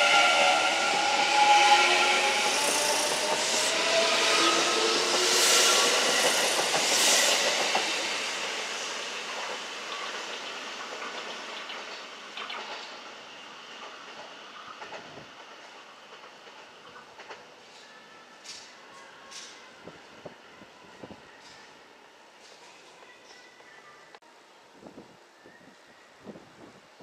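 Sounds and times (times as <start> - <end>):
electric train passing: 0.0 - 18.7.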